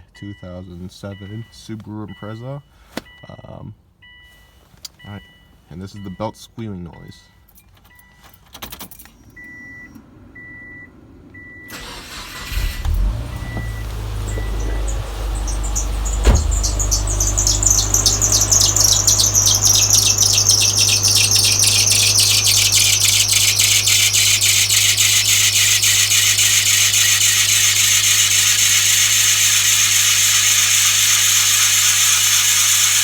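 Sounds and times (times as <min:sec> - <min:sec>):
engine idle hum: 0:09.8 - 0:33.0
belt squealing chirps: 0:11.7 - 0:33.0.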